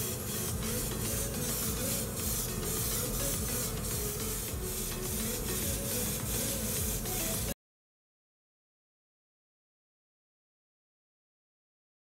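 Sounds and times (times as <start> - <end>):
airbrush spraying paint: 0.0 - 7.6.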